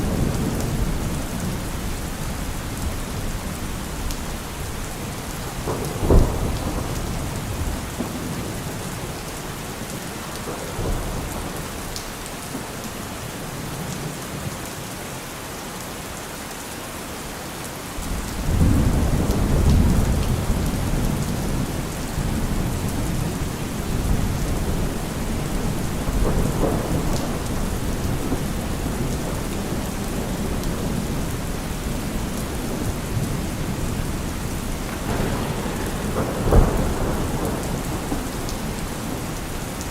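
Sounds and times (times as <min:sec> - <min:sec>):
thunder clap: 0:00.0 - 0:09.5, 0:18.4 - 0:39.9
low rolling thunder rumble: 0:00.0 - 0:12.8, 0:18.0 - 0:39.9
steady rain: 0:00.0 - 0:39.9.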